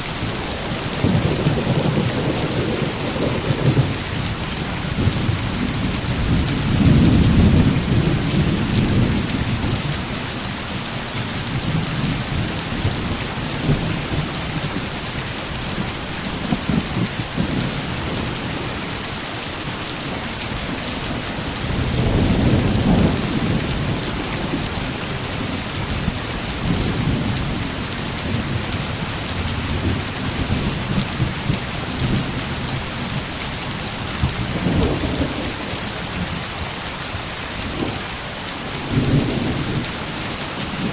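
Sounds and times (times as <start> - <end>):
heavy rain: 0.0 - 40.9
thunder rolling: 0.7 - 4.0.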